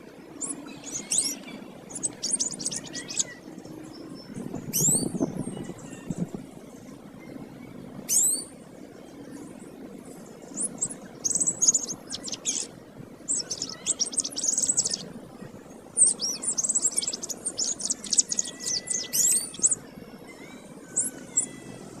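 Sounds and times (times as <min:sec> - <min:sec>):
canary singing: 0:00.4 - 0:06.2, 0:10.5 - 0:12.7, 0:13.3 - 0:15.1, 0:16.0 - 0:21.7.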